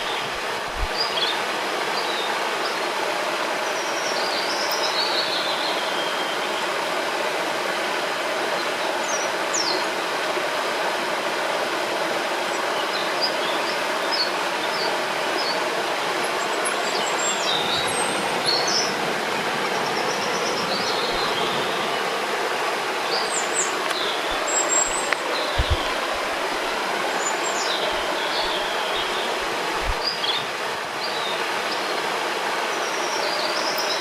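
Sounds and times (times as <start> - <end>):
rushing river: 0.0 - 34.0
birds chirping and whistling: 19.8 - 22.0, 23.0 - 30.5
soft low thumps: 24.3 - 26.7, 29.8 - 30.1.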